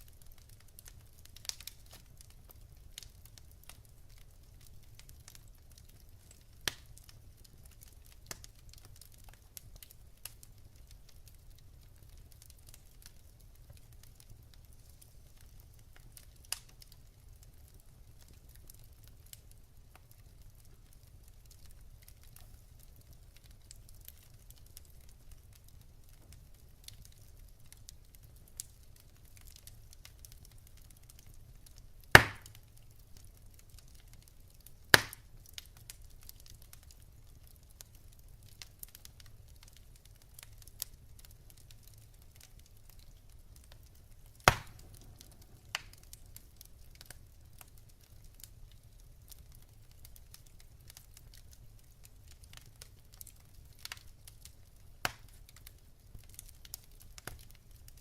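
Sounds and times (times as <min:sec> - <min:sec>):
logs crackling in a fireplace: 0:00.0 - 0:58.0
loud sharp pops of fire: 0:00.1 - 0:11.4, 0:26.9 - 0:37.0, 0:38.4 - 0:48.4, 0:52.4 - 0:57.8.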